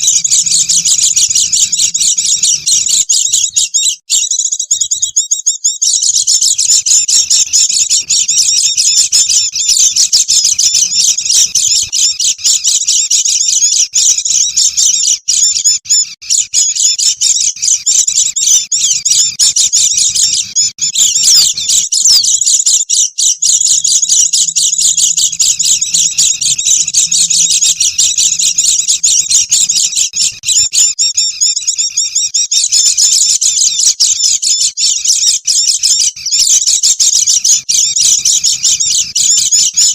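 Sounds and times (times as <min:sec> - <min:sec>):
flock of birds twittering: 0:00.0 - 0:39.9.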